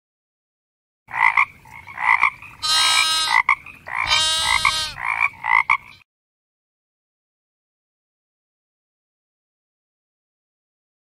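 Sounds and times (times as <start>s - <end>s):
frog croaking: 1.1s - 6.0s.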